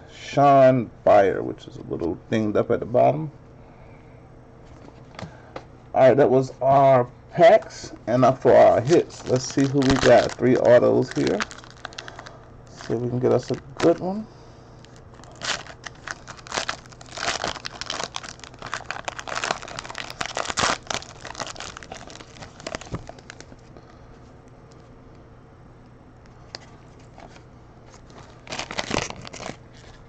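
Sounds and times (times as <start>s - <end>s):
wrapper tearing and crinkling: 8.5s - 14.0s, 14.8s - 23.6s, 27.1s - 30.0s.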